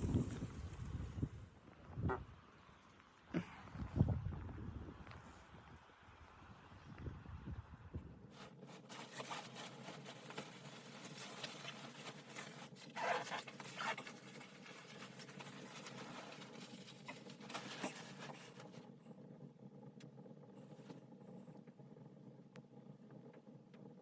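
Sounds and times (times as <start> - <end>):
rustling handling noises: 8.3 - 18.9.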